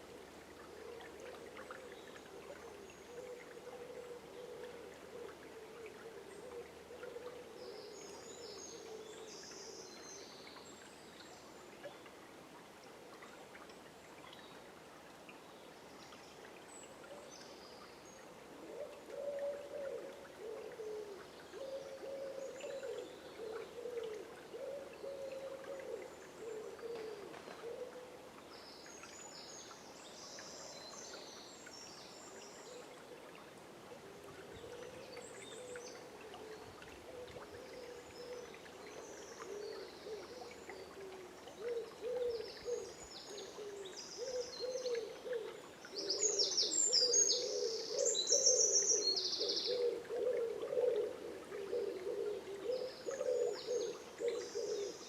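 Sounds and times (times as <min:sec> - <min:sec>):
small songbirds chirping: 0:01.3 - 0:11.6, 0:34.4 - 0:55.0.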